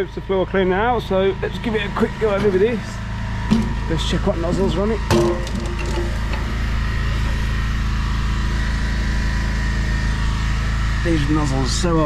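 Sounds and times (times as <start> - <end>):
pressure washer engine running: 1.0 - 12.0.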